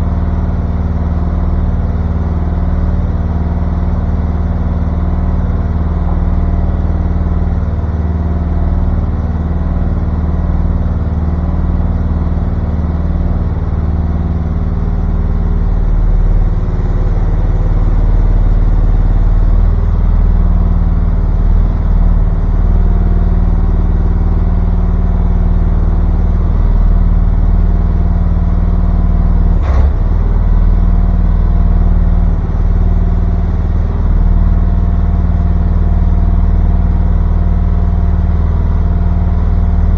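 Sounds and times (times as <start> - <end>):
excavator engine idling: 0.0 - 39.9
sharp knock: 29.5 - 30.4.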